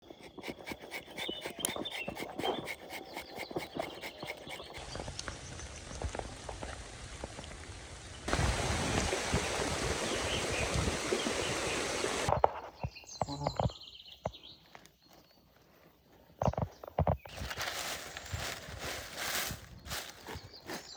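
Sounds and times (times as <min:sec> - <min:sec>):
rain falling: 0:06.2 - 0:11.2.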